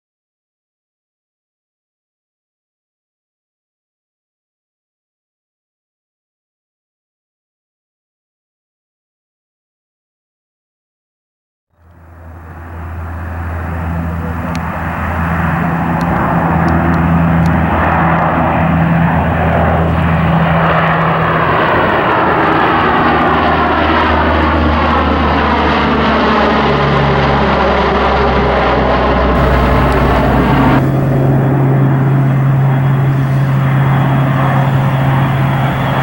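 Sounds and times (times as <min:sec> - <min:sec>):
airplane flying past: 0:11.8 - 0:36.0
low steady drone: 0:11.8 - 0:36.0.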